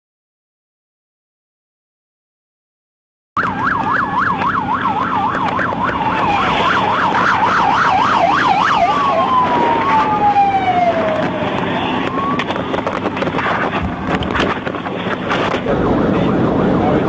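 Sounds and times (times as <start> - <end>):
engine and road noise: 3.4 - 17.0
police siren yelping and wailing: 3.4 - 17.0.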